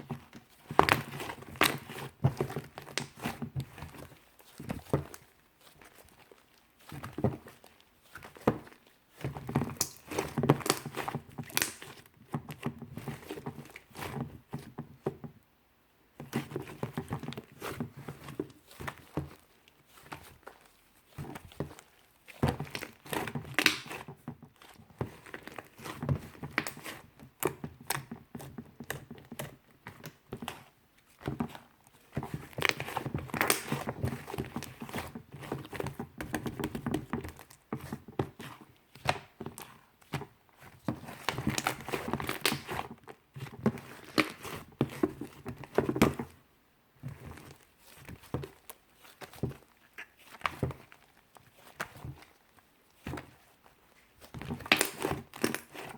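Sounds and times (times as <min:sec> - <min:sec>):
sticky slime squishing: 0:00.0 - 0:15.4, 0:16.1 - 0:55.9
slime crackling clicks and pops: 0:11.6 - 0:11.9, 0:23.6 - 0:23.9.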